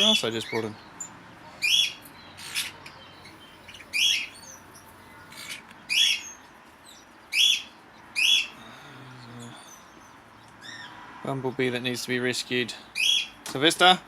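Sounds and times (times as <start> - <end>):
parrots making harsh calls: 1.6 - 6.4, 7.3 - 9.8, 13.0 - 13.4
faint chirps: 8.4 - 10.9.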